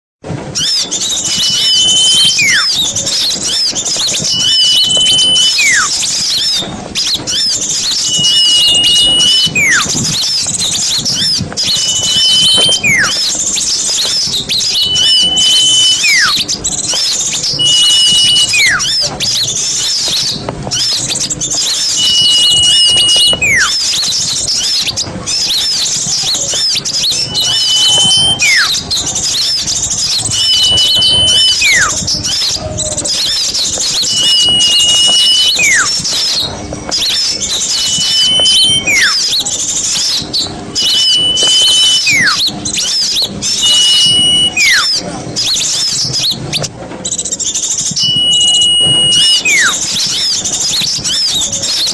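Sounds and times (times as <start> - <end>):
descending whistle: 0.5 - 51.9
small birds chirping: 0.5 - 51.9.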